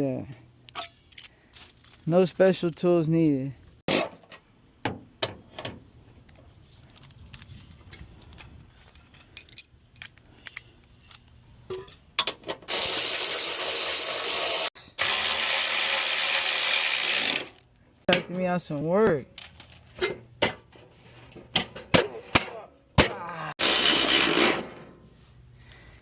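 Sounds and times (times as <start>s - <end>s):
metal parts and tools clinking: 0.3s - 2.1s, 6.8s - 12.6s.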